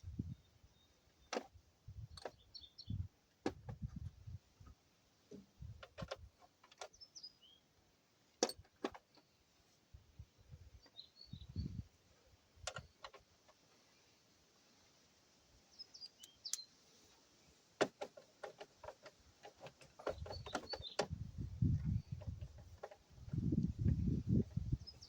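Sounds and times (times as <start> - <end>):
birds chirping: 2.1 - 3.1, 10.4 - 11.9, 15.7 - 17.2, 19.6 - 25.0.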